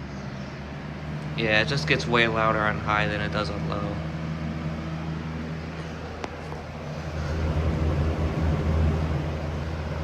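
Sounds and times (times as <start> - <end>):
fan air rushing: 0.0 - 10.0
low motor hum: 0.0 - 10.0
fan click: 6.2 - 10.0.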